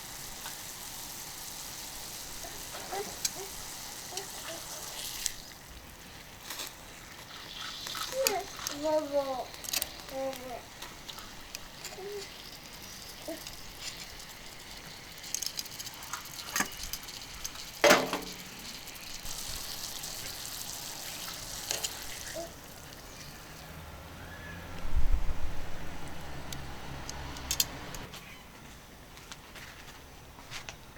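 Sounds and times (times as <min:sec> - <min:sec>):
food sizzling on hot plate: 0:00.0 - 0:23.8
low rumble: 0:24.0 - 0:27.1.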